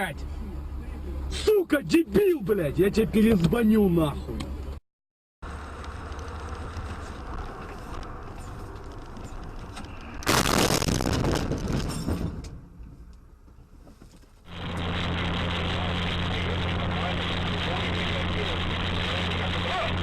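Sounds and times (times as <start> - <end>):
car road and engine noise: 0.0 - 4.8, 5.4 - 20.0
sudden loud rough noise: 14.5 - 20.0.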